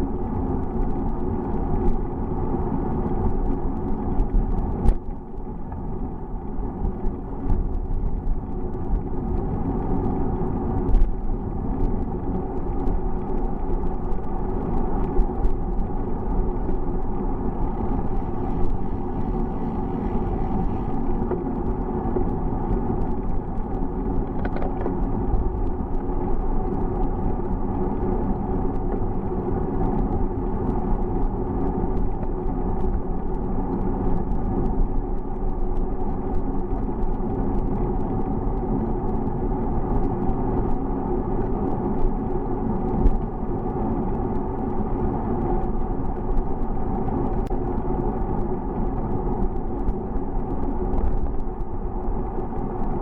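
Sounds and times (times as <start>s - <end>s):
wind and road noise: 0.0s - 53.0s
faint ticks: 10.8s - 53.0s.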